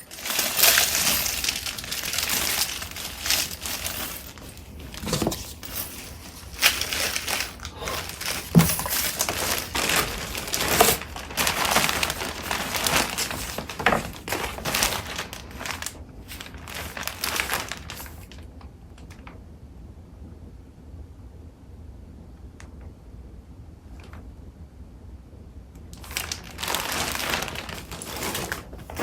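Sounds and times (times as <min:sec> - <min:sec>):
paper rustling and crackling: 0:00.0 - 0:18.5, 0:26.0 - 0:29.0.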